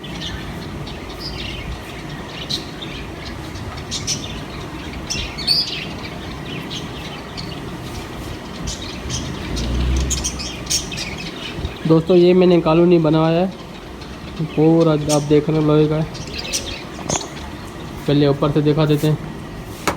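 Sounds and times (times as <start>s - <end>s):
parrots chirping: 0.0s - 19.2s
low rumble: 8.7s - 11.8s.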